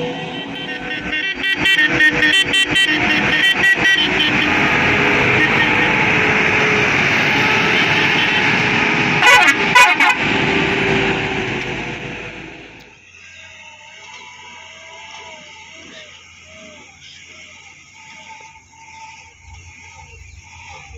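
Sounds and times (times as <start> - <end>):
vehicle horn short toots: 0.0 - 10.5.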